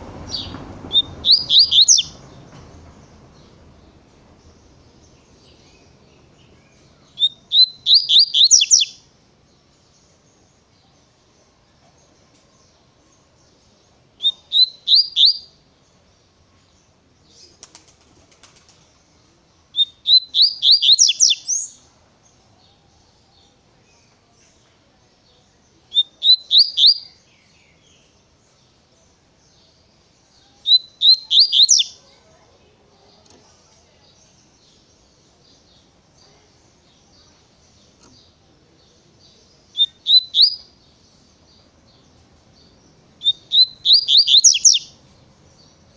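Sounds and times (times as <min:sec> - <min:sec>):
bird whistled song: 0:00.3 - 0:03.6, 0:05.0 - 0:09.0, 0:14.2 - 0:15.6, 0:19.7 - 0:21.8, 0:25.9 - 0:27.8, 0:30.6 - 0:32.0, 0:39.7 - 0:40.8, 0:43.2 - 0:45.0.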